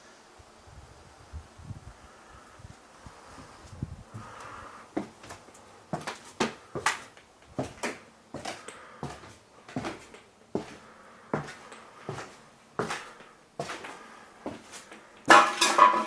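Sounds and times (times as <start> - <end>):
footsteps on a floor: 5.0 - 16.0.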